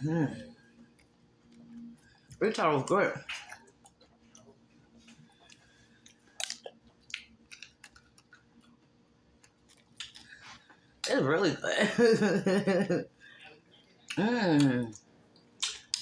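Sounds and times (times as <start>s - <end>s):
chewing and biting: 3.3s - 10.4s.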